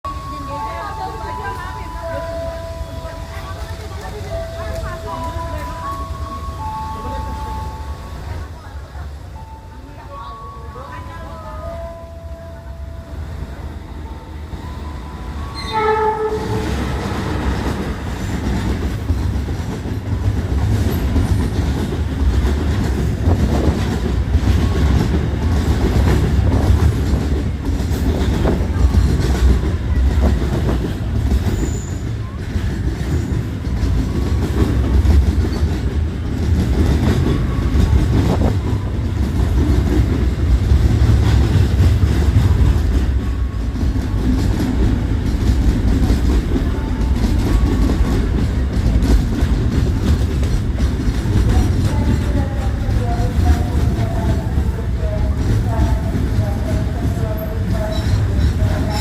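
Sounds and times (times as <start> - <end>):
locomotive horn blast: 15.5 - 17.0.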